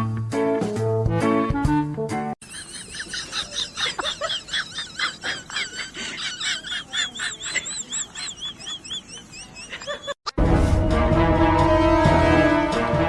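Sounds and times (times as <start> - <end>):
small birds chirping: 2.4 - 10.2
wavering bird trills: 6.4 - 10.2.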